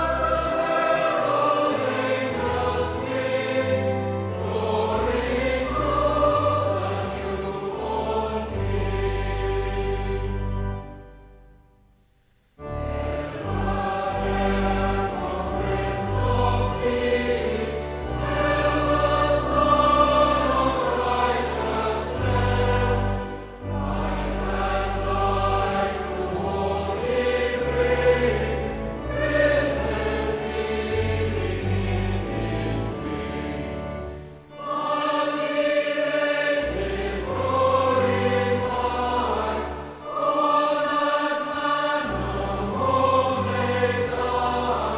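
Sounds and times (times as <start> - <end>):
choir singing: 0.0 - 11.4, 12.6 - 44.9
sustained low accompaniment: 12.6 - 44.9.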